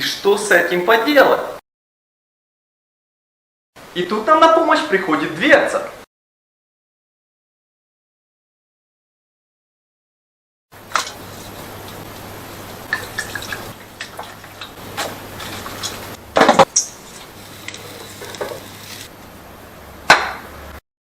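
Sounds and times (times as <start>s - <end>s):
faint steady hum: 10.8s - 20.8s.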